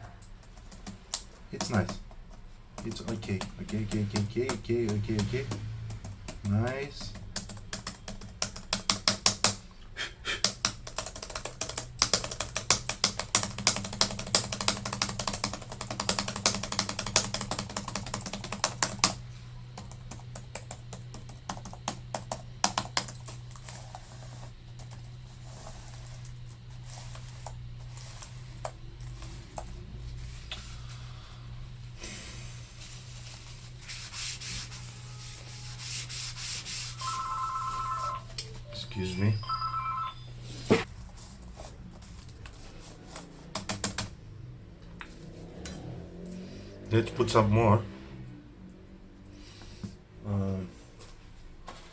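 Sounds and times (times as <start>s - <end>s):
laptop keyboard keys clicking: 0.2s - 9.6s, 10.4s - 19.2s, 19.8s - 23.8s, 43.5s - 44.1s.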